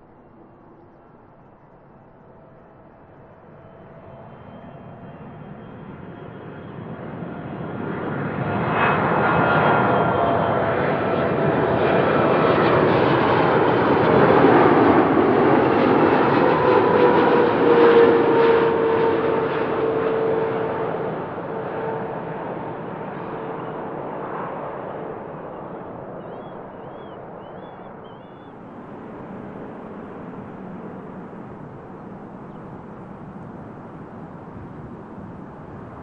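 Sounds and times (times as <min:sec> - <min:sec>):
jet airliner engines passing: 0:00.0 - 0:36.0
engine whining tones: 0:28.3 - 0:36.0.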